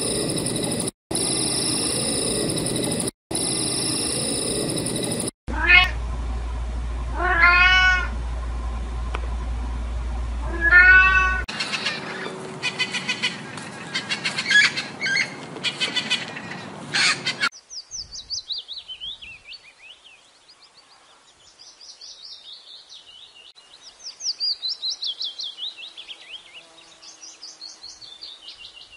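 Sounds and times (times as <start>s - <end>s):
high falling chirping trills: 0.0s - 5.3s
rapid clicking chirps: 0.0s - 5.3s
kitten meowing: 5.5s - 5.9s, 7.2s - 8.1s, 10.5s - 11.4s.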